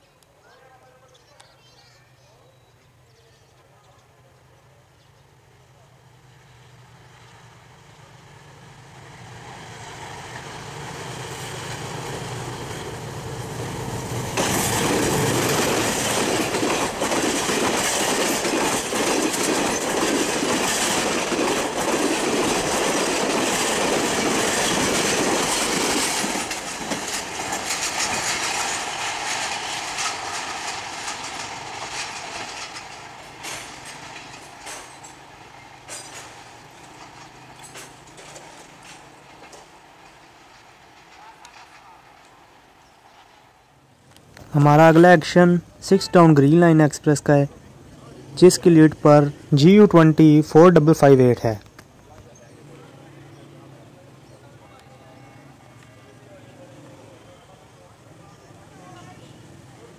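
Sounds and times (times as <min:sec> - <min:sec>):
diesel locomotive engine drone: 0:04.0 - 0:46.0
train coaches rattling: 0:05.5 - 0:59.9
wheels clicking over rail joints: 0:14.3 - 0:42.4.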